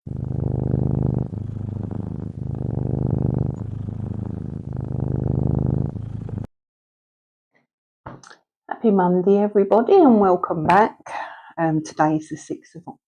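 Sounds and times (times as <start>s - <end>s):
cat purring: 0.0s - 6.5s.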